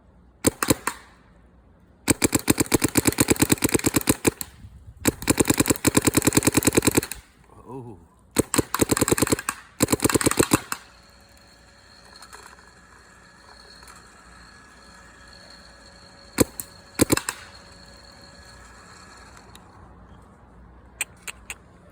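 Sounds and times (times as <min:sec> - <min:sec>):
paintball marker firing: 0:00.4 - 0:01.2, 0:02.1 - 0:07.3, 0:08.4 - 0:10.9, 0:16.4 - 0:18.1.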